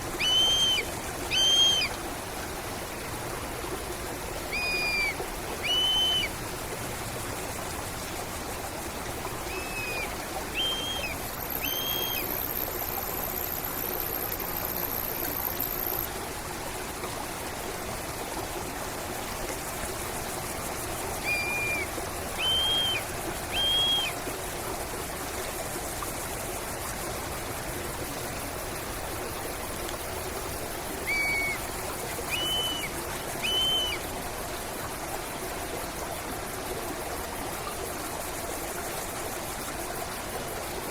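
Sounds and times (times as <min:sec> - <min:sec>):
stream water flowing: 0:00.0 - 0:40.9
bird calling: 0:00.1 - 0:02.0, 0:04.5 - 0:06.4, 0:09.4 - 0:12.4, 0:21.2 - 0:24.2, 0:31.0 - 0:34.0.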